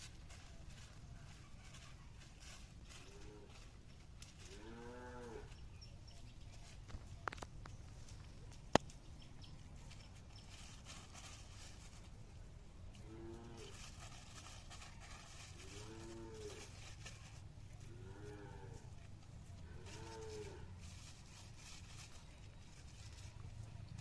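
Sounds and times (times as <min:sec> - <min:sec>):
animal mooing: 0:04.4 - 0:05.6, 0:13.0 - 0:13.8, 0:15.6 - 0:16.7, 0:17.9 - 0:18.9, 0:19.6 - 0:20.7.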